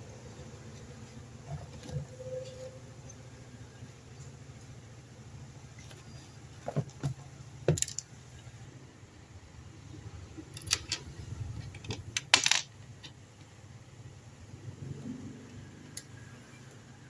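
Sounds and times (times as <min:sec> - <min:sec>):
low steady hum: 0:00.0 - 0:17.0
metal parts and tools clinking: 0:07.7 - 0:08.1, 0:10.5 - 0:12.7.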